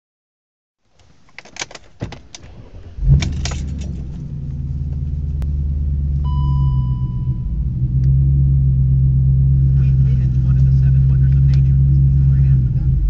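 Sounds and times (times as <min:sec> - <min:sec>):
car engine starting and idling: 0:01.0 - 0:13.0
keys jingling in ignition: 0:03.2 - 0:04.2
electronic beep: 0:06.2 - 0:07.6.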